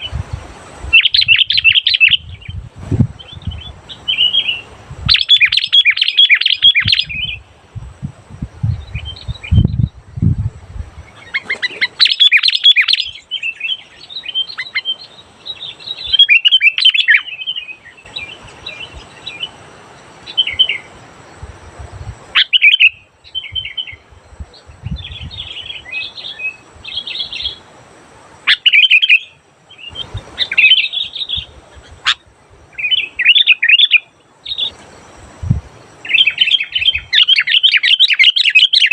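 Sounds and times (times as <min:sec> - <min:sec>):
bulbul chirping song: 0:00.9 - 0:02.6, 0:03.2 - 0:07.5, 0:11.1 - 0:19.6, 0:22.4 - 0:27.6, 0:28.4 - 0:34.8, 0:36.0 - 0:38.9.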